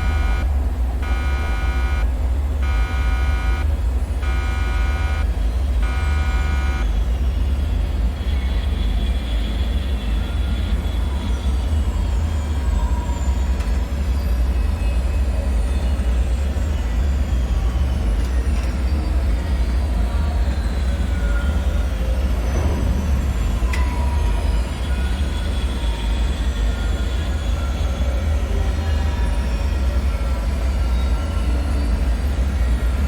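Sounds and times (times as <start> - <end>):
buzzing alarm tone: 0.0 - 7.1
heavy low rumbling drone: 0.0 - 9.6.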